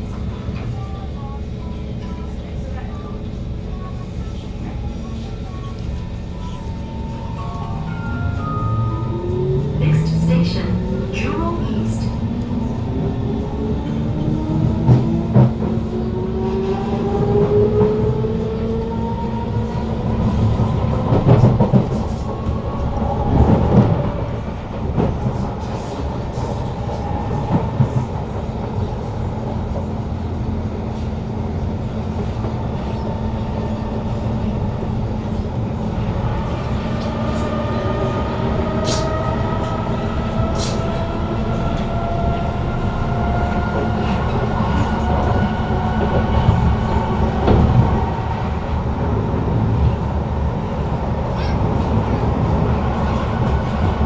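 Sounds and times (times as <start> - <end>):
wheel and track rumble: 1.5 - 54.0
train wheels clickety-clack: 14.0 - 16.0, 16.6 - 50.1, 50.7 - 54.0.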